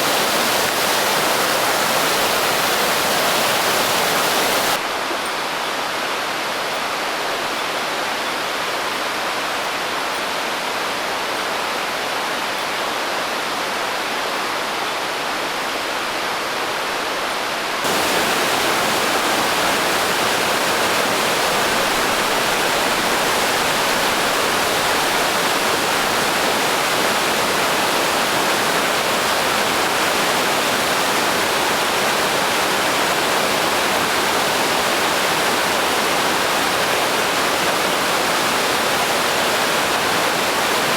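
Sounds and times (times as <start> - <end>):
waterfall rushing: 0.0 - 7.3, 17.8 - 40.9.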